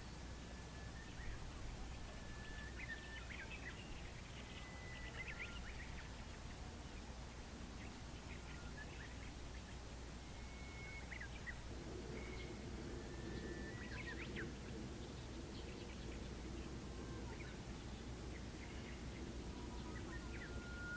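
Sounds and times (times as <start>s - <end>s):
small birds chirping and whistling: 0.0s - 6.6s, 7.8s - 20.9s
low outdoor rumble: 0.0s - 20.9s
low steady hum: 0.0s - 20.9s.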